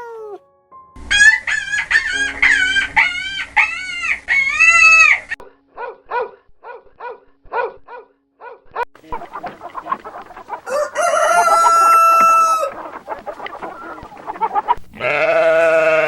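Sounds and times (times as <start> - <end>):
chickens clucking: 1.0 - 5.4, 9.0 - 16.0
rooster crowing: 1.0 - 5.4, 10.7 - 12.8, 15.0 - 16.0.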